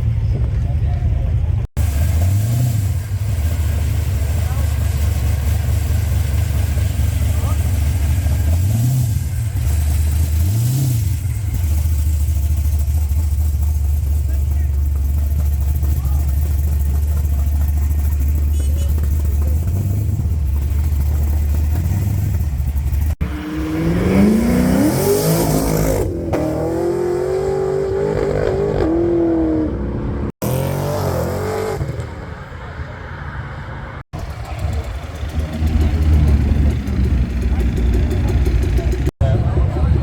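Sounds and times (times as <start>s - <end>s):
car engine idling: 0.0s - 23.4s, 34.1s - 40.0s
car engine accelerating: 1.8s - 32.5s, 34.1s - 40.0s.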